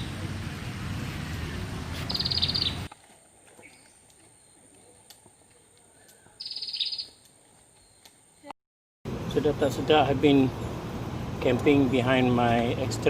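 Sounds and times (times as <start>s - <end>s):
bird trill: 2.1s - 2.9s, 6.4s - 7.2s.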